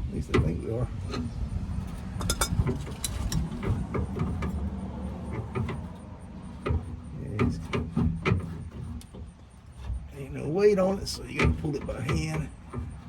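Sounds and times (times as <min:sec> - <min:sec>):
steady low rumble: 0:00.0 - 0:07.7
metallic clicks and knocks: 0:00.3 - 0:09.9.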